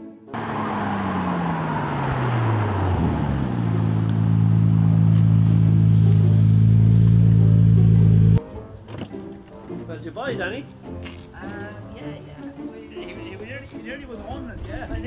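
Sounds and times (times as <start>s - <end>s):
car engine driving by: 0.3s - 8.4s.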